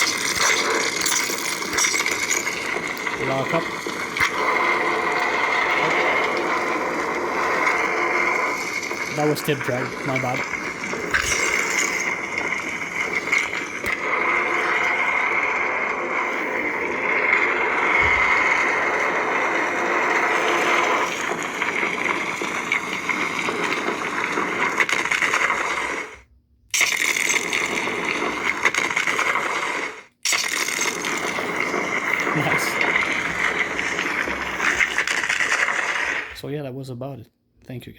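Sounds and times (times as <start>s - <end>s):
lightsaber blade hum: 0.0s - 21.5s.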